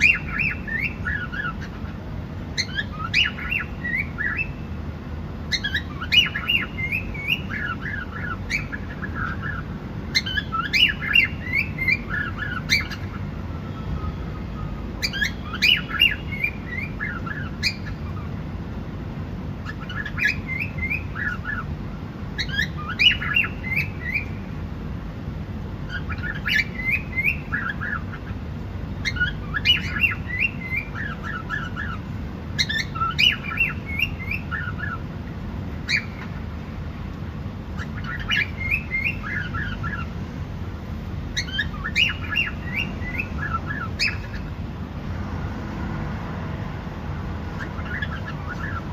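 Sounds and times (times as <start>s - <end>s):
cockatiel chirping: 0.0s - 4.7s, 5.5s - 18.3s, 19.6s - 21.7s, 22.4s - 24.5s, 25.9s - 28.4s, 29.0s - 35.0s, 35.8s - 36.4s, 37.8s - 40.1s, 41.3s - 44.6s, 47.6s - 48.9s
low background hum: 0.0s - 48.9s.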